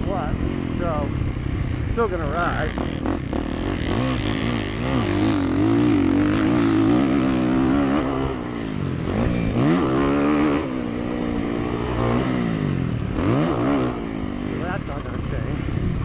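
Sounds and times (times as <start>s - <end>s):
motocross bike engine revving: 0.0s - 16.0s.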